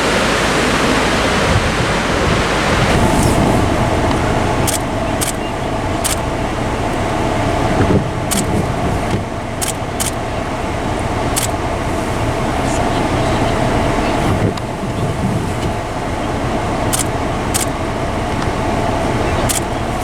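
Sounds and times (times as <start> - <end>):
car engine and road noise: 0.0 - 20.0
sharp ticks or rattles: 4.7 - 5.4, 6.0 - 6.3, 8.3 - 8.5, 9.6 - 10.2, 11.3 - 11.6, 16.9 - 17.8, 19.5 - 19.8.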